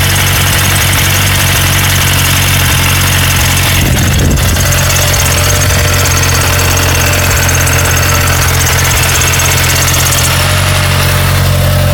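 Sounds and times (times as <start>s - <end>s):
car engine idling: 0.0s - 11.9s
fast even ticking: 0.7s - 10.6s.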